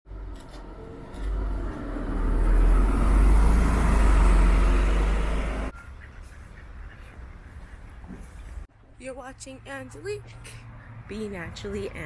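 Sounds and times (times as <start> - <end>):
vehicle rumbling close by: 0.1 - 6.0.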